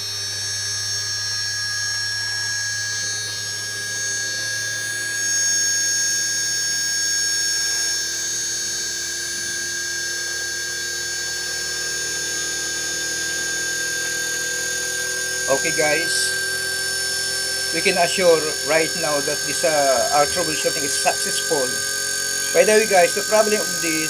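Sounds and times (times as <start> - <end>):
high-pitched electrical whine: 0.0 - 24.0
air conditioner hum: 15.3 - 24.0.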